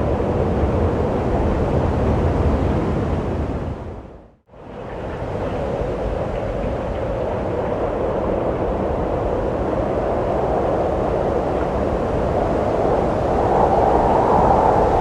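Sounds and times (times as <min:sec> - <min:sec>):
wind blowing: 0:04.8 - 0:15.0.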